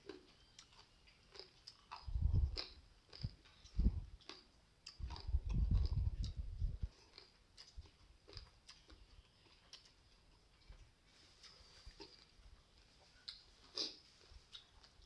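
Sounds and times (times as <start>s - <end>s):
person chewing crunchy food: 0.0s - 15.0s
sharp mouth clicks: 1.4s - 6.8s.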